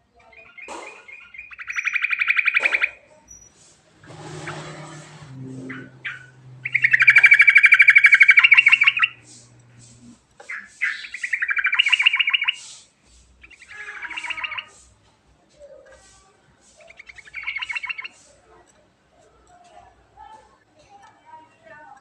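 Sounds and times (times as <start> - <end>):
bulbul singing trilled phrases: 0.3 - 3.6, 4.4 - 12.8, 13.4 - 15.0, 16.6 - 18.3.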